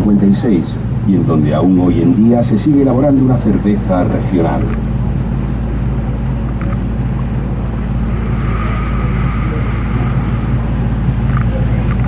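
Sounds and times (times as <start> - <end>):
boat motor humming: 4.6 - 12.0.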